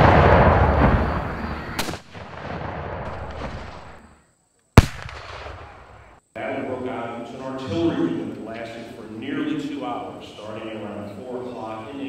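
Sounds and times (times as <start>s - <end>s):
cannon firing: 0.0s - 4.0s, 4.8s - 6.1s
cannon shot echo rumbling: 0.0s - 4.0s, 4.8s - 5.9s.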